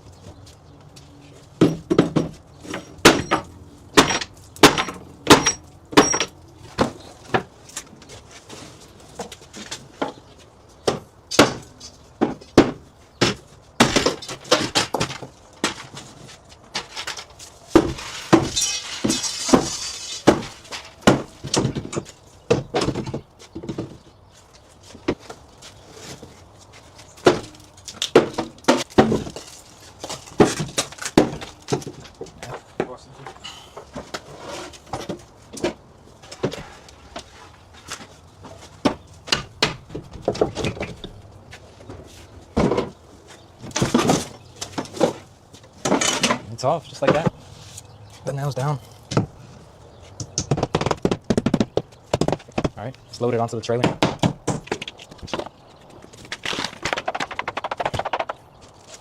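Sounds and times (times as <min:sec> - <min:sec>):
shelf scraping and rattling: 0:33.4 - 0:39.0, 0:41.8 - 0:47.4.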